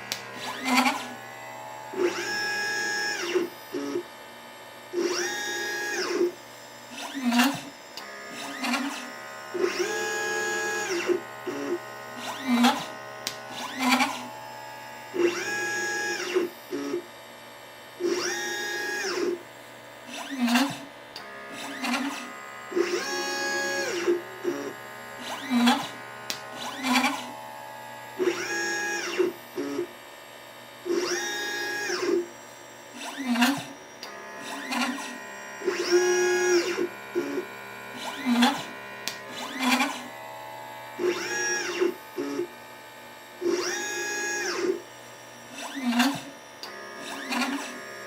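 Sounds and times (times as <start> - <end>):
stepper motors whining: 0.0 - 4.1, 4.9 - 17.1, 18.0 - 19.4, 20.1 - 30.0, 30.8 - 48.0
sharp machine clicks: 38.0 - 40.1, 45.5 - 47.8.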